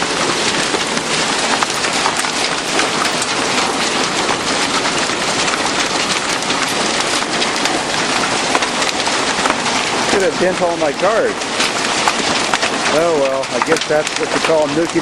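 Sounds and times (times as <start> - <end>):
heavy hail pelting down: 0.0 - 15.0.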